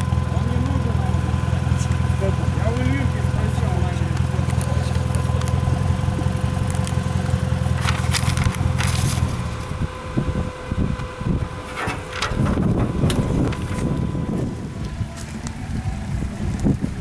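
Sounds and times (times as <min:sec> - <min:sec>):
off-road vehicle engine running: 0:00.0 - 0:17.0
crackling knocking noises: 0:02.8 - 0:09.7, 0:11.7 - 0:17.0.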